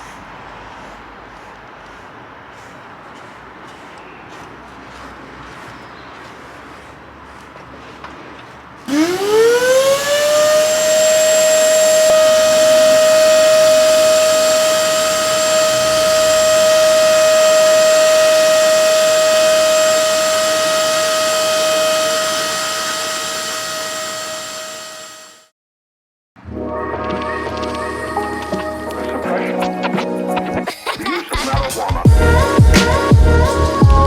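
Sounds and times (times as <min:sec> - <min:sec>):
machine polisher motor whine: 0:08.9 - 0:25.5.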